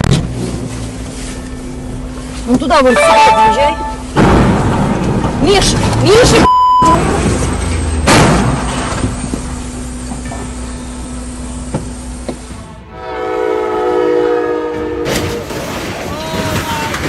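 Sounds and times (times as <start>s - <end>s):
train rumbling past: 0.3s - 6.4s, 7.0s - 17.0s
train horn blast: 2.9s - 4.2s, 12.6s - 15.6s.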